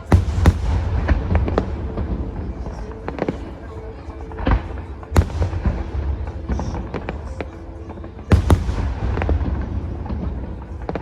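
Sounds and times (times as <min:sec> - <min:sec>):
fireworks bangs and booms: 0:00.0 - 0:11.0
music playing: 0:00.0 - 0:11.0.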